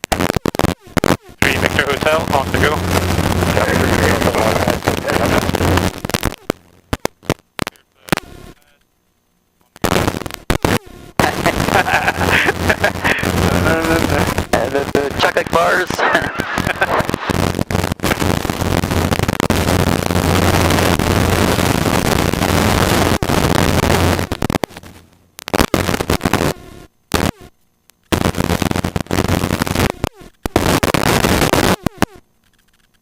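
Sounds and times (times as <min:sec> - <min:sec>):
low hum: 0:00.0 - 0:33.0
helicopter cabin hiss: 0:03.5 - 0:05.6.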